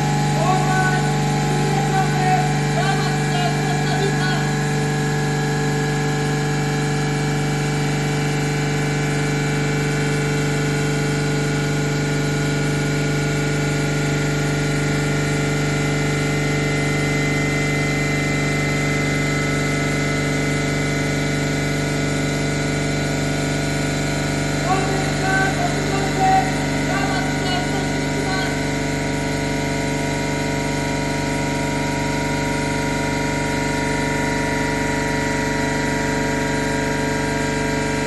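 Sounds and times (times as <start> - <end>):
refrigeration compressor humming: 0.0 - 38.0.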